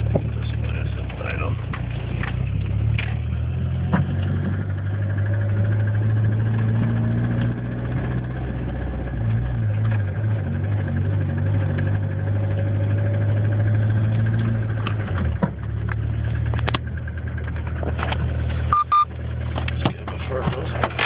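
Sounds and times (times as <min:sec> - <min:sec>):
car engine idling: 0:13.0 - 0:21.0.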